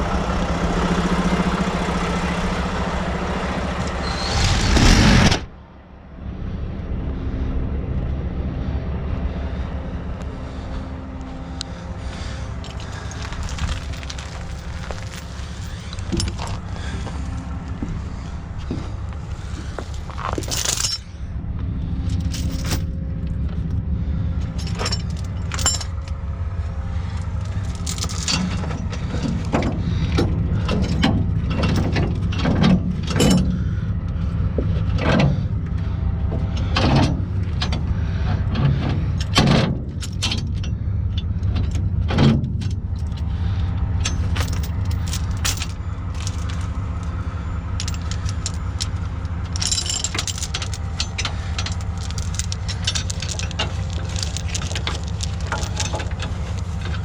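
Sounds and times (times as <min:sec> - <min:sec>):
heavy truck engine running: 0:00.0 - 0:57.0
metallic clanks and rattles: 0:12.0 - 0:21.2, 0:22.0 - 0:23.7, 0:24.4 - 0:33.7, 0:36.4 - 0:43.4, 0:44.0 - 0:57.0.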